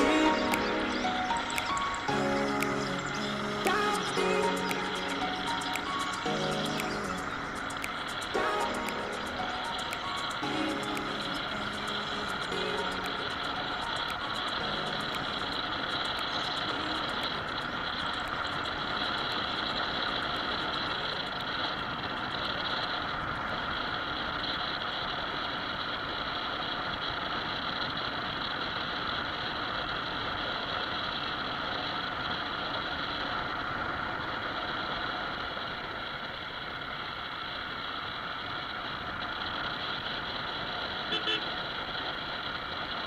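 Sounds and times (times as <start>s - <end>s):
road noise: 33.3s - 43.0s.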